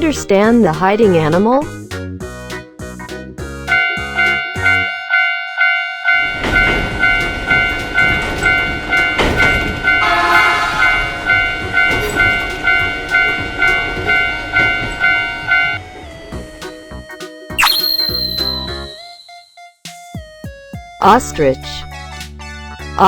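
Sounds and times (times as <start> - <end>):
passing train rumble: 3.4 - 17.2
railroad crossing bell ringing: 3.7 - 16.1, 17.6 - 19.5.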